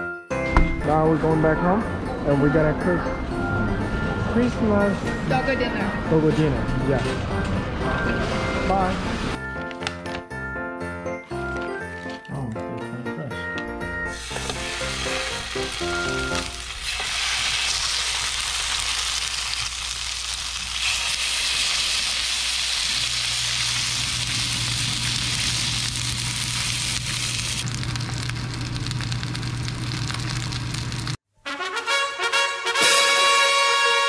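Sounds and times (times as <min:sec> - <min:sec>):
fish sizzling in a frying pan: 0:14.2 - 0:31.2.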